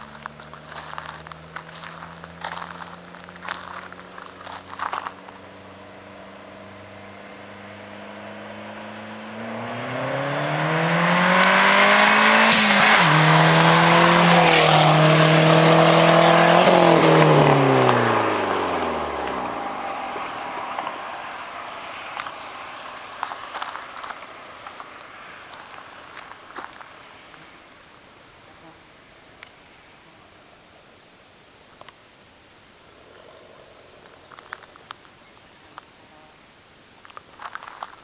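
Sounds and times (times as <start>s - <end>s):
car engine accelerating: 0.0s - 26.2s.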